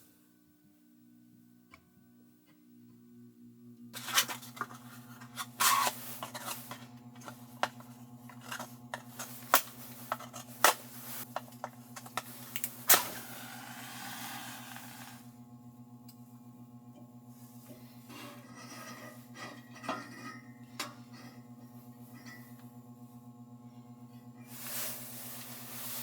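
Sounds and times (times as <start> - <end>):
steady low hum: 0.1 - 26.0
objects being handled: 4.0 - 12.8
steady hiss: 12.8 - 15.2.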